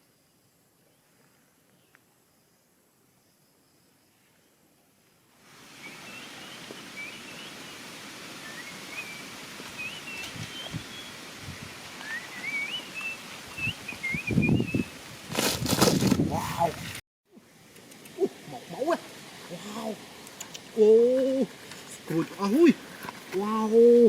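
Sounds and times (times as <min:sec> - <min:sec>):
steady outdoor hiss: 0:00.0 - 0:24.0
soft rustles and thumps: 0:15.3 - 0:16.9.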